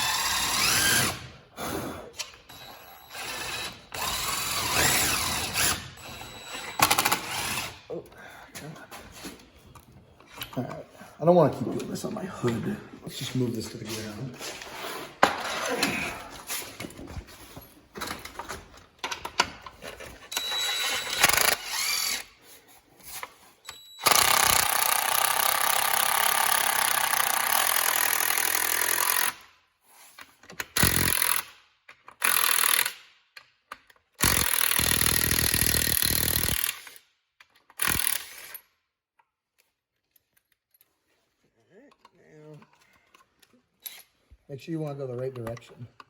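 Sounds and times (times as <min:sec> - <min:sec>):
power drill running: 0:00.0 - 0:01.3, 0:02.5 - 0:07.8, 0:20.3 - 0:22.3, 0:24.0 - 0:29.3, 0:30.8 - 0:31.4, 0:34.2 - 0:36.8.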